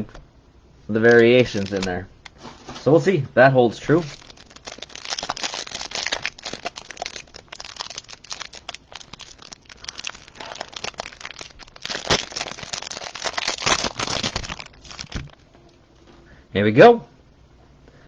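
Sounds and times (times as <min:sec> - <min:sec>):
plastic wrapper crinkling: 0:01.0 - 0:03.0, 0:03.8 - 0:15.5.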